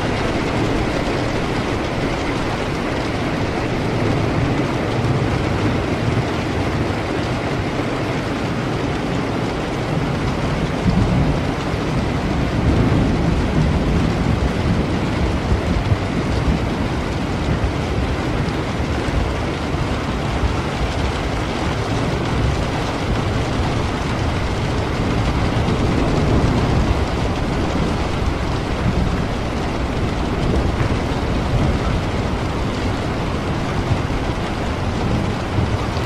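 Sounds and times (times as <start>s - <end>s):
low rumble of thunder: 0.0s - 7.6s, 8.4s - 36.0s
heavy rain: 0.0s - 36.0s.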